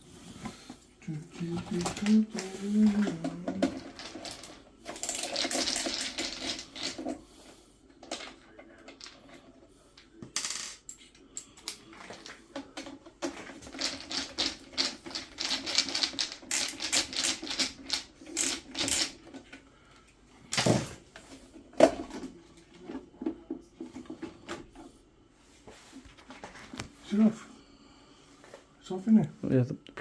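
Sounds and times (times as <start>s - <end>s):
metal parts and tools rattling: 1.4s - 7.2s, 13.2s - 19.5s.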